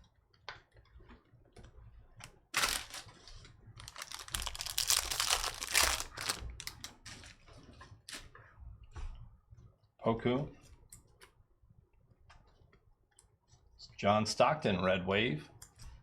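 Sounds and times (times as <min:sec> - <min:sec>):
wrappers rustling: 0:02.5 - 0:07.4.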